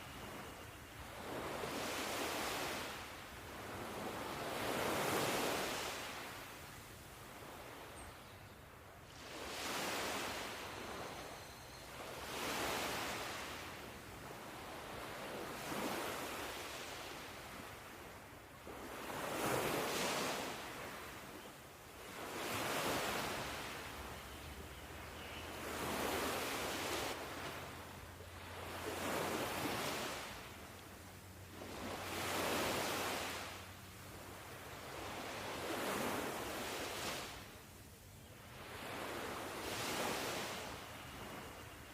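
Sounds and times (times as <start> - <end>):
ocean waves washing in: 25.7 - 30.8.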